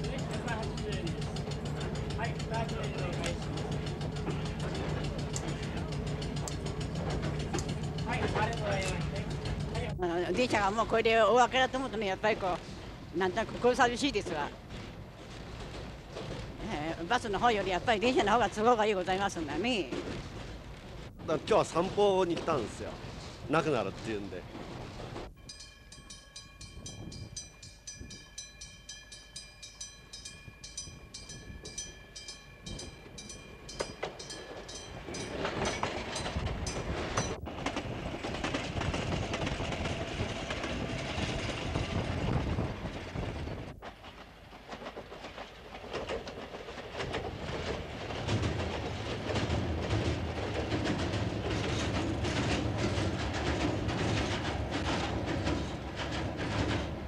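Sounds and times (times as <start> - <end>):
train wheels clattering over rail joints: 0.0 - 26.2, 30.2 - 57.0
level-crossing bell ringing: 25.3 - 37.4.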